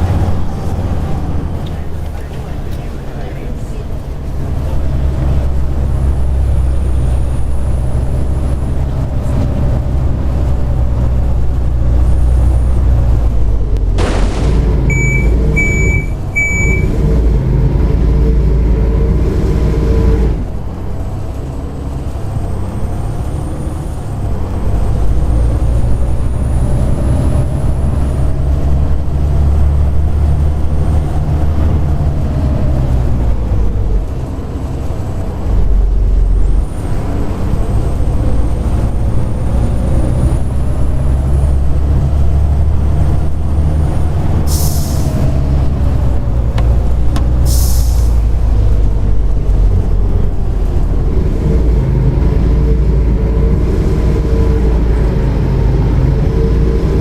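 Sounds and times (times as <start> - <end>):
bus diesel engine with high whine: 0.0 - 57.0
short warning beeps: 14.9 - 17.0.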